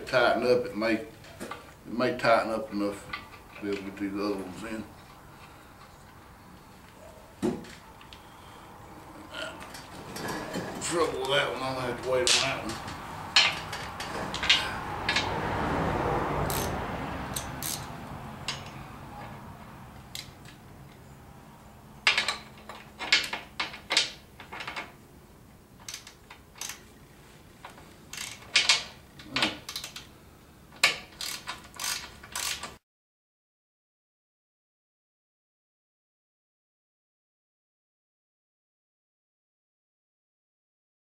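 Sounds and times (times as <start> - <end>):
ratchet wrench clicking: 16.5 - 17.9, 25.8 - 26.9, 28.1 - 29.0, 29.6 - 30.1, 30.8 - 32.8.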